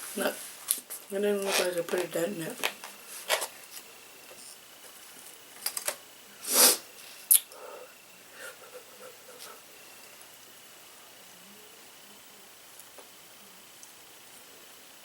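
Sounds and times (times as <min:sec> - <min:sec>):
noisy breath through nose: 0:06.4 - 0:09.8.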